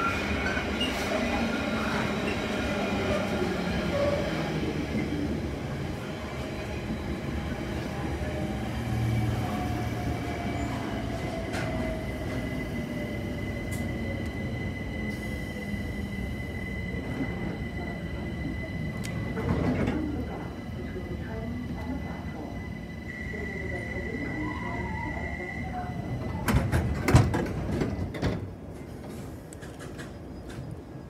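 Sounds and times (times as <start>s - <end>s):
freight train rumbling: 0.0s - 31.0s.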